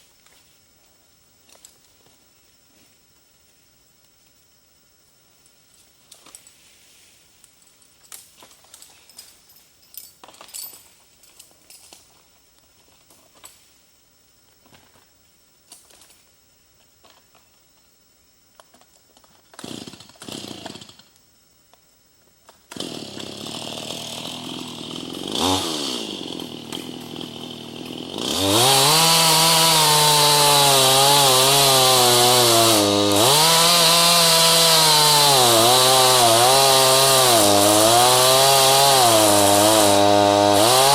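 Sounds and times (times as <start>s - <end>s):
chainsaw pull-starter tugs: 19.5s - 21.1s, 22.7s - 40.9s
chainsaw engine running: 22.7s - 40.9s.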